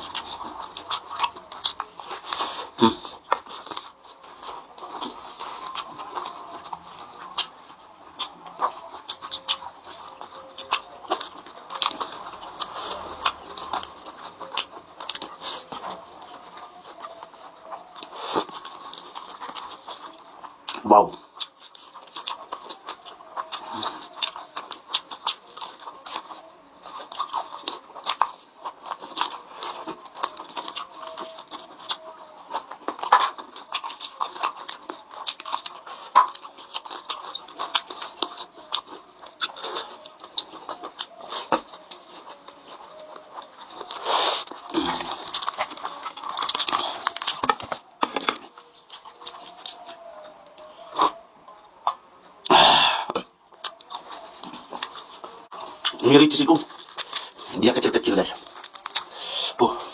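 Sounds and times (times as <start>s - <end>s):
chewing with mouth clicks and smacks: 0.0s - 59.9s.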